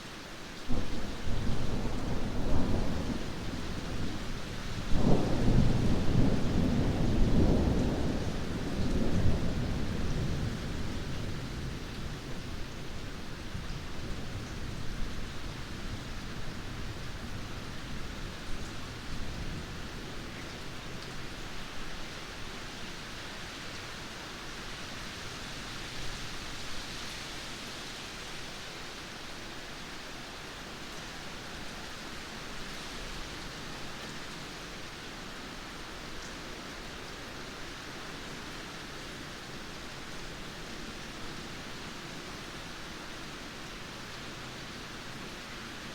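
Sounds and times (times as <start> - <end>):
steady rain falling: 0.0 - 45.9
thunder rumbling: 0.7 - 12.3.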